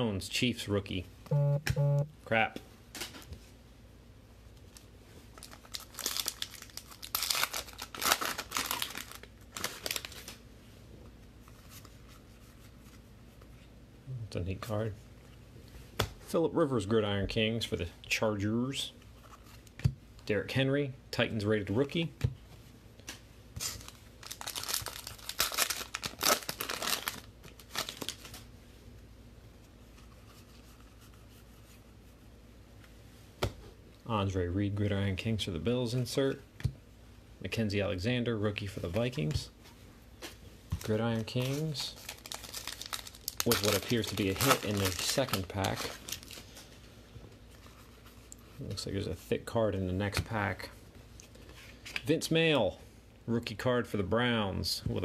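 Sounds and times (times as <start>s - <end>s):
foil wrapper tearing and crinkling: 5.4s - 10.4s, 23.6s - 28.4s, 40.8s - 46.6s.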